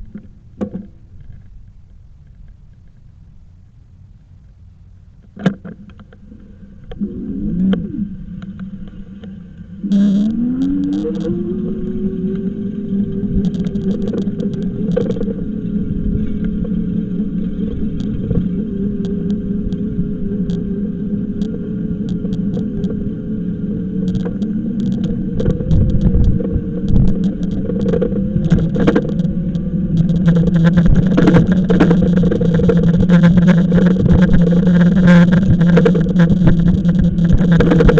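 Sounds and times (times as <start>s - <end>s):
road and wind rumble: 0.0s - 37.9s
electric bike motor whining: 6.4s - 37.9s
clicks: 6.8s - 15.4s, 24.0s - 37.9s.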